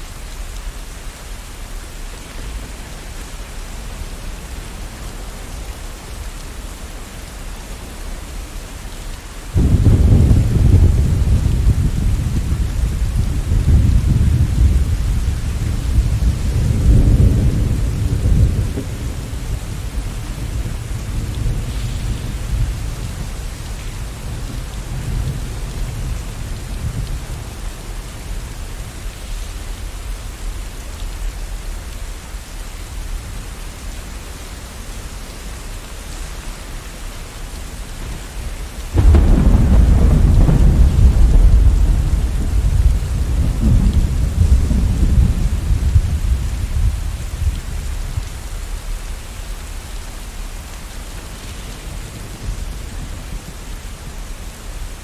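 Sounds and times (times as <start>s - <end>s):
steady rain: 0.0s - 55.0s
thunder rumbling: 9.5s - 29.8s, 37.8s - 48.5s
loud peal of thunder: 9.6s - 23.4s, 38.0s - 47.0s.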